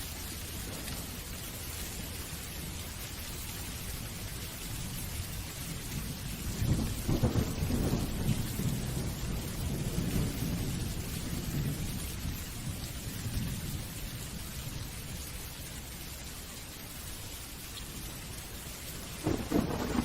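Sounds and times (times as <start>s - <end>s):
steady rain falling: 0.0s - 20.0s
thunder rumbling: 6.1s - 14.0s, 18.9s - 20.0s.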